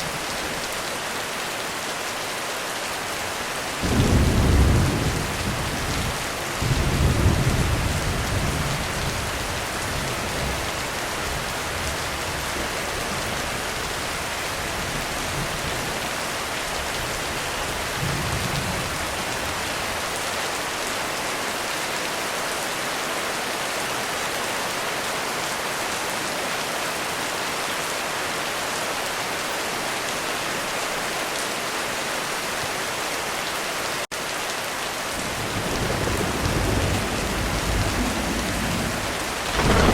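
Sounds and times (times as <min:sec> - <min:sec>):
heavy rain falling: 0:00.0 - 0:39.9
thunder rumbling: 0:03.8 - 0:12.5, 0:35.2 - 0:39.9.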